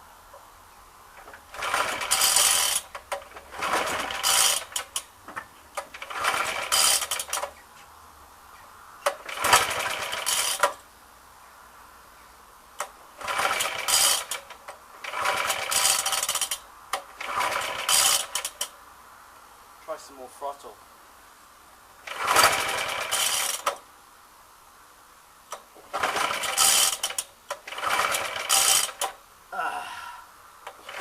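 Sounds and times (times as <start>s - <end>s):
lawnmower engine turning over: 1.1s - 7.6s, 9.0s - 10.8s, 12.8s - 18.7s, 22.0s - 23.9s, 25.5s - 29.2s, 30.6s - 31.0s.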